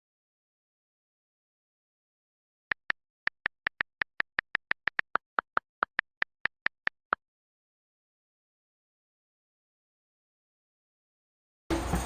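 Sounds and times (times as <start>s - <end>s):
short sharp clicks: 2.7s - 7.2s.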